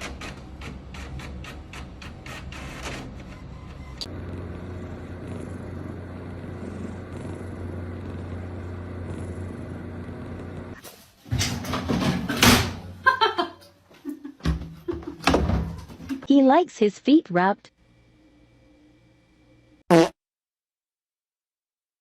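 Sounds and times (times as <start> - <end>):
rhythmic mechanical clicking: 0.0 - 4.6.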